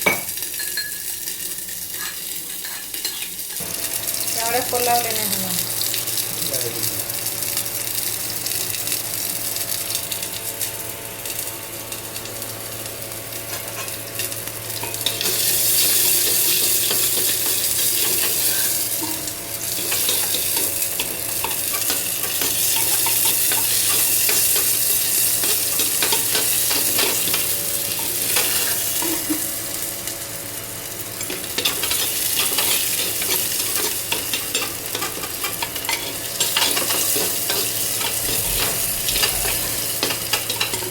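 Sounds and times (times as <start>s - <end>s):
food sizzling in hot oil: 0.0s - 40.9s
steady low hum: 38.0s - 40.4s.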